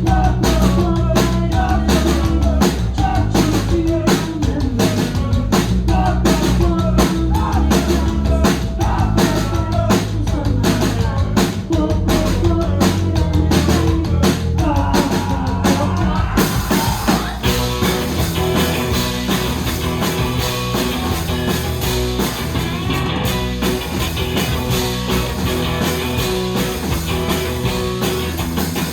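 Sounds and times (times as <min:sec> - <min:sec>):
bass guitar: 0:00.0 - 0:28.9
drum kit: 0:00.0 - 0:28.9
electric guitars: 0:13.4 - 0:28.9.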